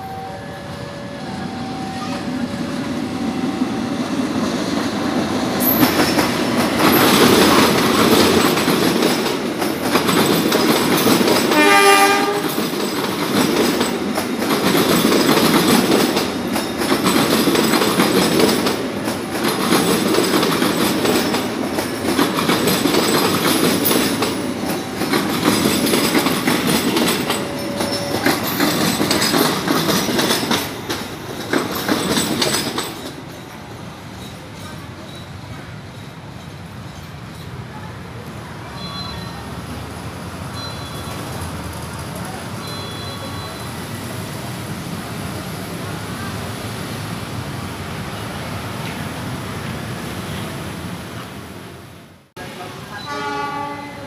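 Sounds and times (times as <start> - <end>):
train running rumble: 0.7 - 37.8
train wheel clatter: 4.2 - 39.0
train horn blast: 11.5 - 12.6, 53.0 - 54.0.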